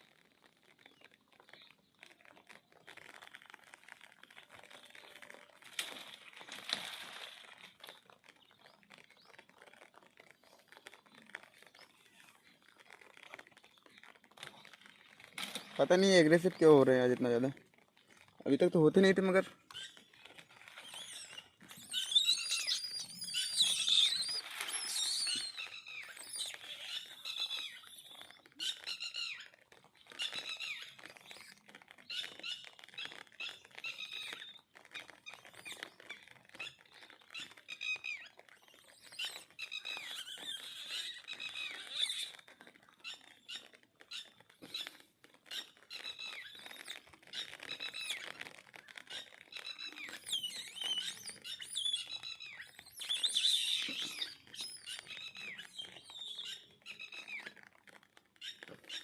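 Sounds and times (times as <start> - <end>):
monkeys squealing: 20.8 - 28.0, 39.0 - 42.3, 49.6 - 57.4.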